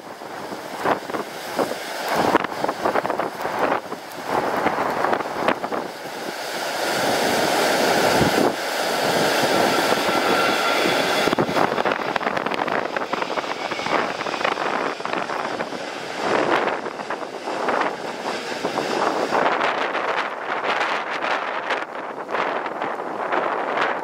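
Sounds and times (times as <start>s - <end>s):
jet airliner engines whining: 0.0s - 24.0s
wind buffeting microphone: 0.0s - 24.0s.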